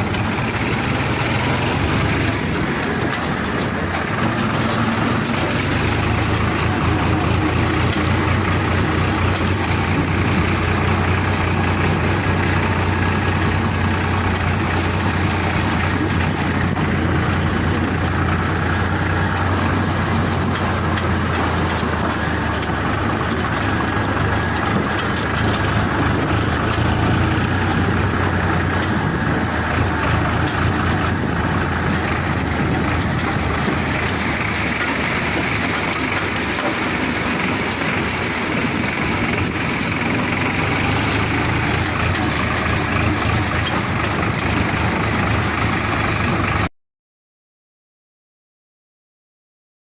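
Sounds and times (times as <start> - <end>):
tractor diesel engine droning: 0.0 - 46.7.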